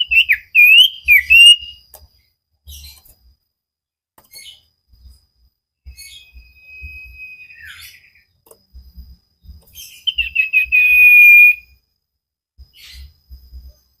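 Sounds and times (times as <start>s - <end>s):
bird whistling: 0.0s - 1.8s, 5.9s - 8.2s, 9.7s - 11.7s.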